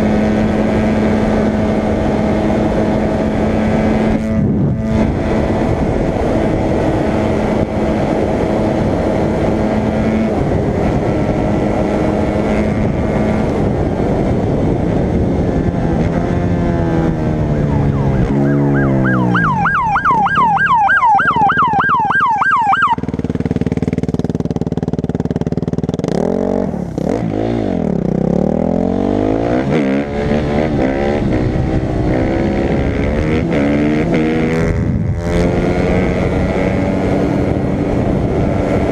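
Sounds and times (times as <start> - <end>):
motorcycle engine revving: 0.0 - 38.9
police siren yelping: 17.4 - 23.0.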